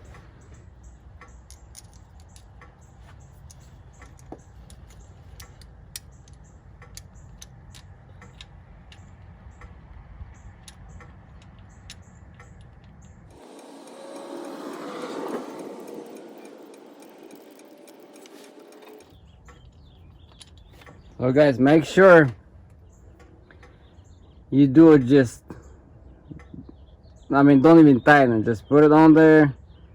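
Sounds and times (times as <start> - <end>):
metallic clicks of hand tools: 1.2 - 2.8
rushing noise: 13.3 - 19.1.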